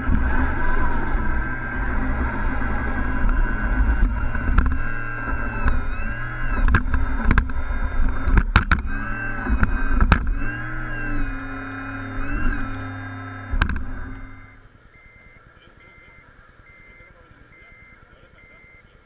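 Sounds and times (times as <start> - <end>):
sharp clicks and knocks: 0.0 - 14.6
rc truck engine running: 0.0 - 19.0.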